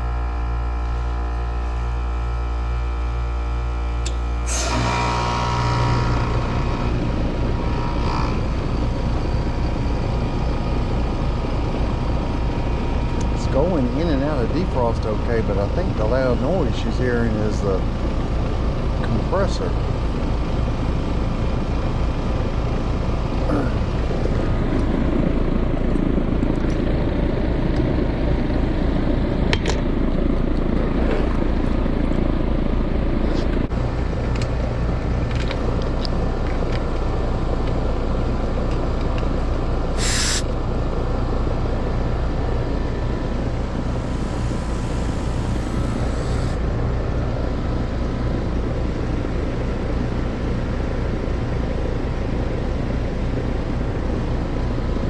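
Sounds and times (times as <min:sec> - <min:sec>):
compressor humming: 0:00.0 - 0:14.2, 0:39.9 - 0:46.7
brief sharp noise: 0:40.0 - 0:40.5, 0:43.6 - 0:46.6.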